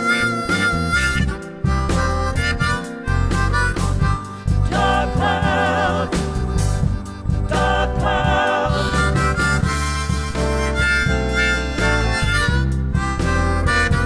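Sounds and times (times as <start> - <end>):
band playing: 0.0 - 14.0
blues harmonica solo: 0.0 - 14.0.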